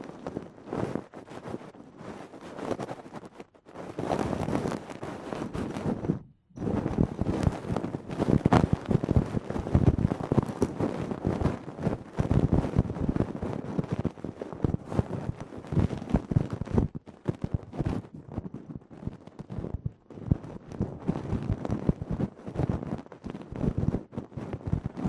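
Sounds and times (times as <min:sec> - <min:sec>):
tool scratching against microphone: 0:03.8 - 0:11.1.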